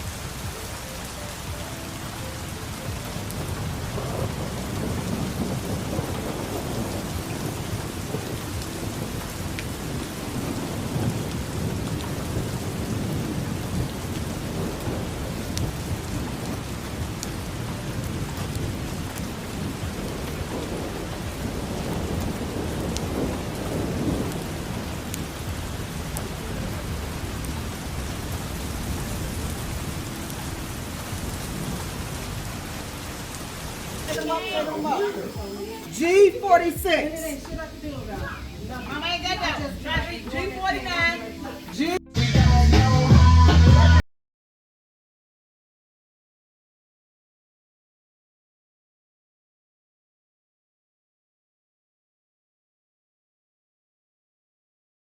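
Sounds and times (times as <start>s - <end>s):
thunder rumbling: 0.0s - 42.0s
steady rain: 0.0s - 44.0s
raindrop taps: 13.8s - 30.3s, 36.5s - 41.8s.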